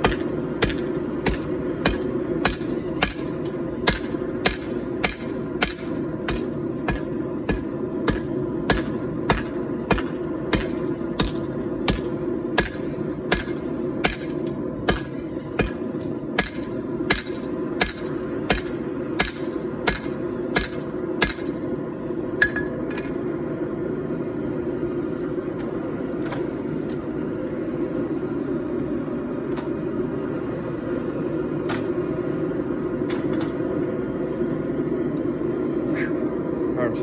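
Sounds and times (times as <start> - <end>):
hammer blows on hot steel: 0.0 - 21.7.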